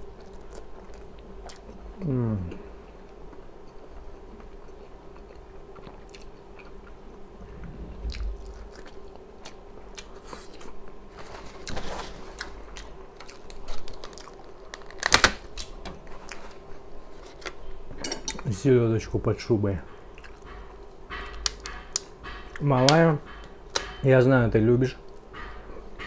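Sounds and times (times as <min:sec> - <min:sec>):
person chewing food: 0:00.0 - 0:15.1, 0:20.1 - 0:22.6
faint steady hum: 0:00.0 - 0:26.0.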